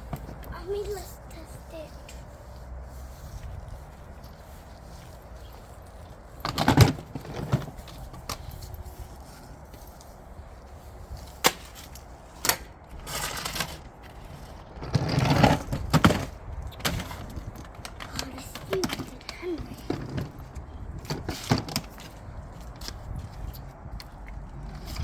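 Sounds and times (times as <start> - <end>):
scraping rustles: 0.0 - 25.0
plastic toys knocking and clattering: 14.9 - 20.4.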